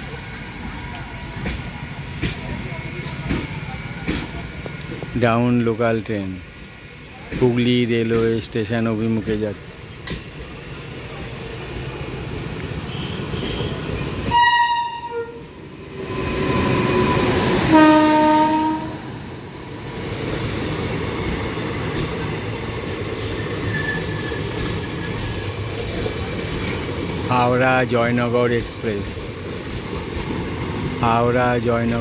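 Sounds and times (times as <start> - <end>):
train rumbling on track: 0.0 - 32.0
train horn blasts: 12.9 - 15.5, 17.6 - 19.1.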